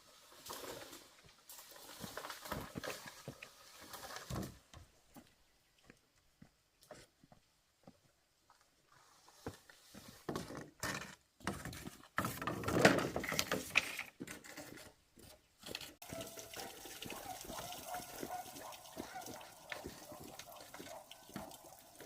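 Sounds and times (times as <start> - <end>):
water splashing and pouring: 0.0 - 4.4, 16.0 - 22.0.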